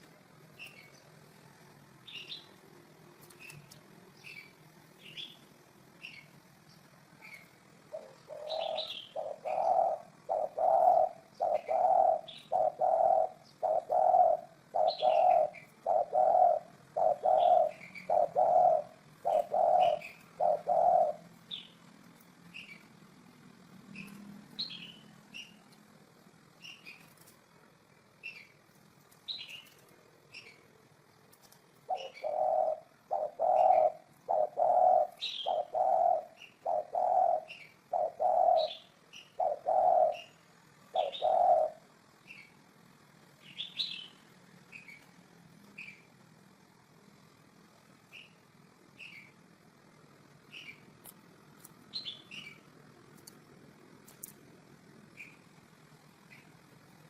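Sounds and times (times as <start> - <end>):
small birds chirping: 0.0 - 57.0
dove cooing: 7.2 - 21.9, 31.8 - 42.5.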